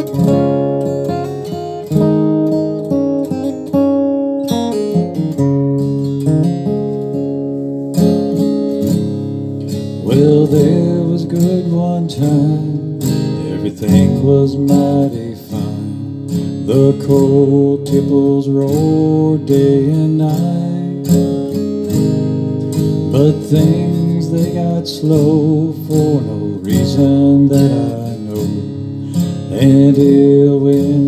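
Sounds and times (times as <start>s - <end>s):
acoustic guitar ballad: 0.0s - 31.0s
person singing: 10.0s - 21.4s, 23.0s - 31.0s.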